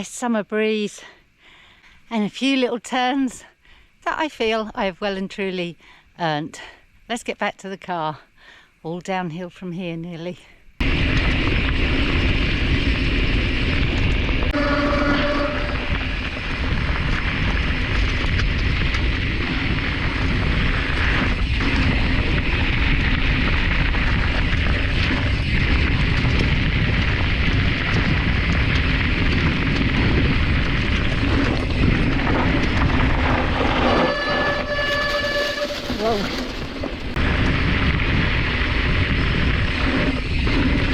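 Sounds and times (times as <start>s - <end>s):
bike tyres rolling on dirt: 10.8s - 40.9s
wind rush on microphone: 10.8s - 40.9s.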